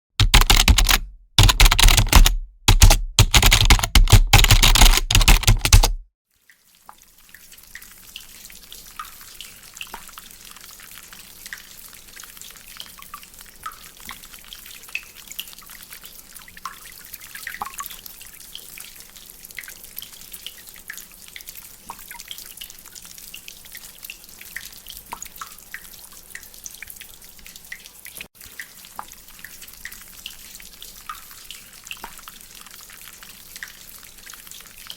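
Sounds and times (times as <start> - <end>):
rain dripping from drainpipe: 6.9 - 15.9, 16.6 - 34.9.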